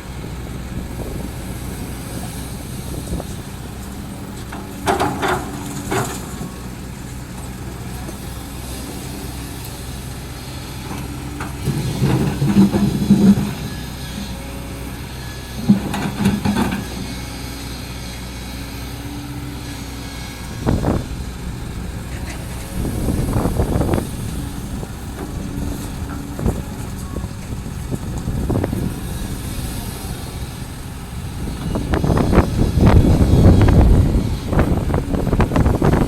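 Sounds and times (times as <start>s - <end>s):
heavy diesel engine running: 0.0s - 36.0s.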